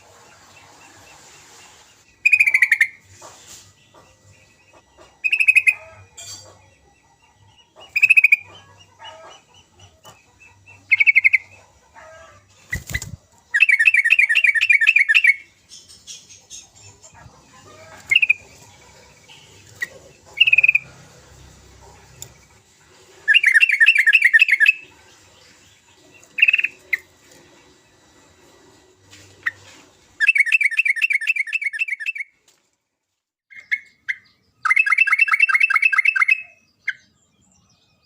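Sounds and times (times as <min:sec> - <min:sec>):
bird chattering calls: 0:02.2 - 0:03.1, 0:04.7 - 0:06.6, 0:07.6 - 0:21.0, 0:23.2 - 0:27.1.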